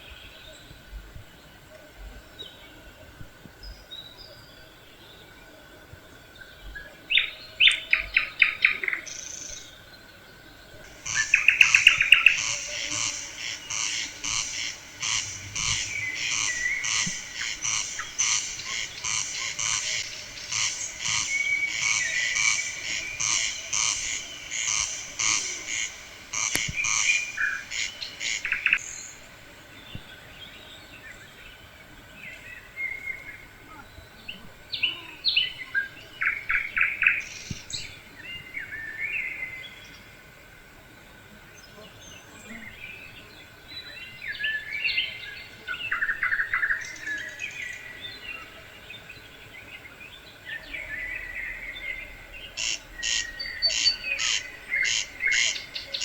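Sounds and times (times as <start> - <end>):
bird trills: 10.9 - 29.2, 52.6 - 56.0
birds singing high notes: 10.9 - 29.2.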